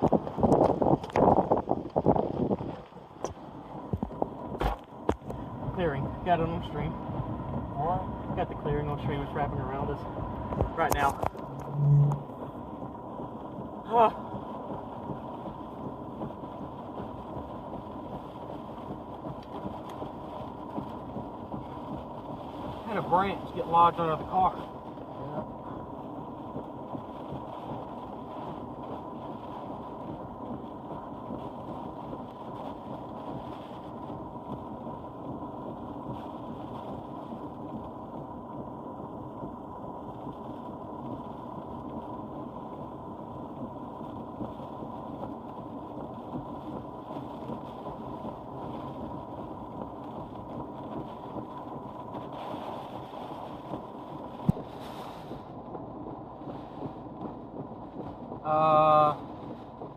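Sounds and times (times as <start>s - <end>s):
car driving rumble: 0.0s - 59.9s
thin steady whine: 0.0s - 59.9s
wind and rain: 0.0s - 59.9s.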